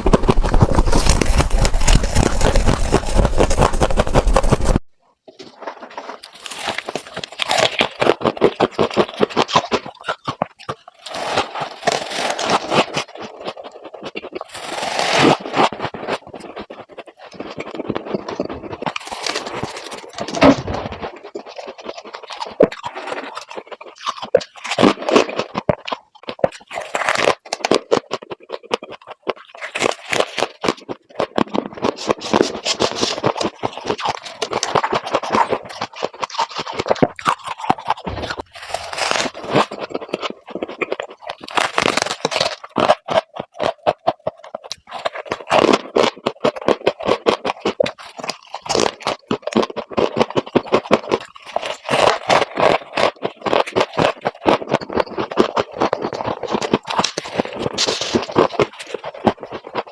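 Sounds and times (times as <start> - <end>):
freezer frost ice being scraped: 11.0 - 25.6, 31.3 - 43.5, 44.5 - 59.9.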